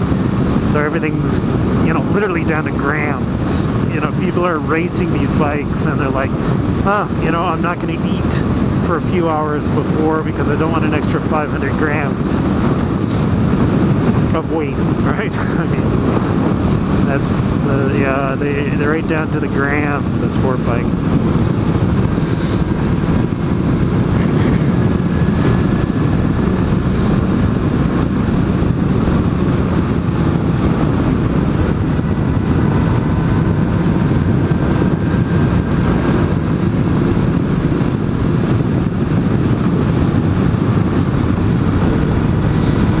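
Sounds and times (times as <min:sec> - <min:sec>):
wind rush on microphone: 0:00.0 - 0:43.0
motorcycle engine running: 0:12.4 - 0:43.0.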